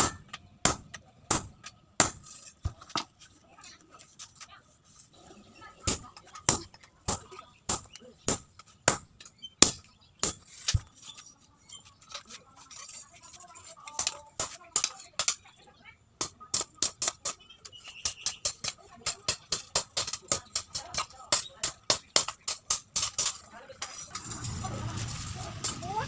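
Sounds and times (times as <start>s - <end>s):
hammer striking steel on anvil: 0.0s - 2.5s, 5.9s - 10.6s.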